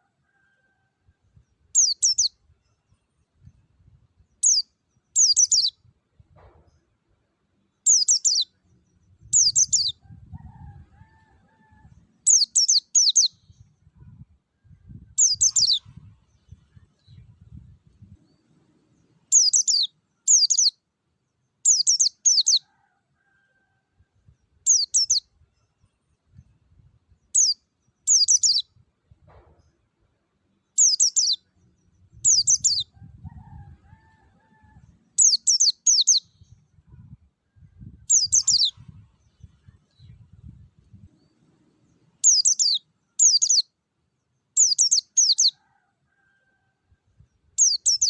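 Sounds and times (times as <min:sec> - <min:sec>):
bird twittering: 0:42.3 - 0:43.6.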